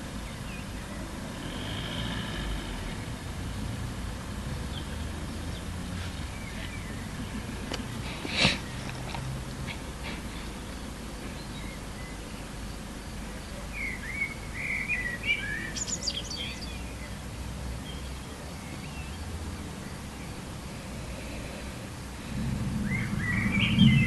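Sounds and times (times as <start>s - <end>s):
outdoor background hiss: 0.0s - 24.0s
bird chirping: 4.6s - 9.2s, 13.3s - 24.0s
low rumble: 20.7s - 24.0s.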